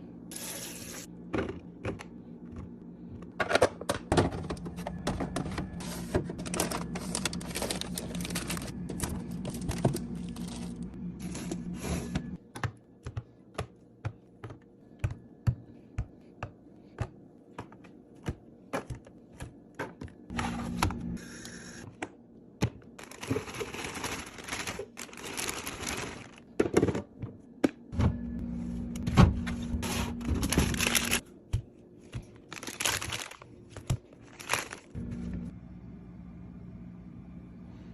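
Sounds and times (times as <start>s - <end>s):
low hum: 4.2s - 12.4s, 27.9s - 32.0s, 35.0s - 37.9s.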